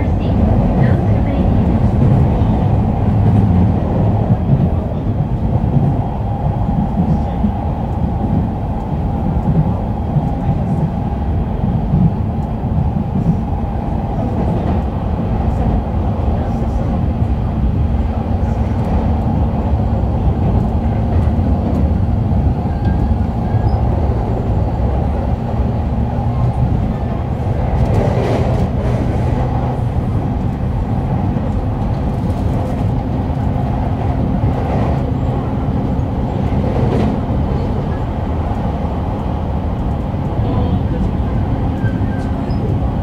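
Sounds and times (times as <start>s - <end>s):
train wheels rumbling on rails: 0.0s - 43.0s.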